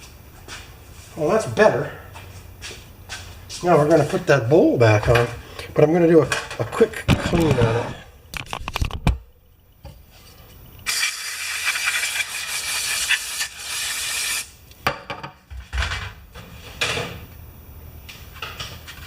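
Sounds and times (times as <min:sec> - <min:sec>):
aerosol spray hissing: 0:10.9 - 0:14.5.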